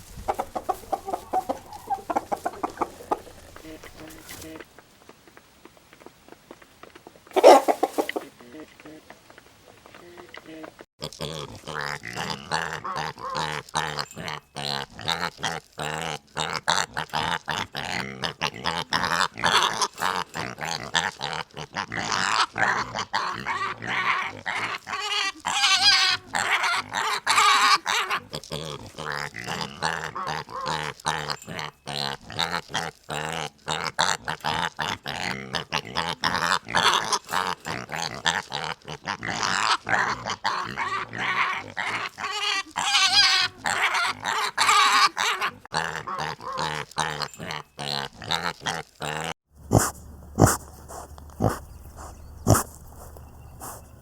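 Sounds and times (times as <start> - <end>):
pigs grunting: 0.0 - 4.6, 7.4 - 8.6, 11.0 - 54.0
pigs calling loudly: 0.2 - 4.6, 7.4 - 8.3, 11.0 - 54.0.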